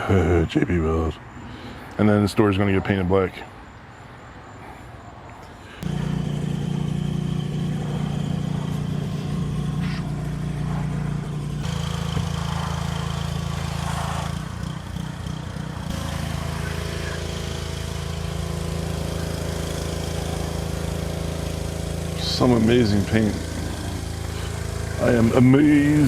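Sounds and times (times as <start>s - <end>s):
small motor humming: 5.8s - 26.0s.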